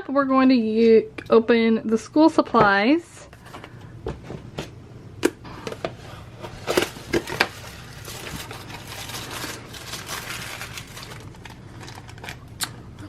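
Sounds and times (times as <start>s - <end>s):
packaging rustling: 5.8s - 12.6s.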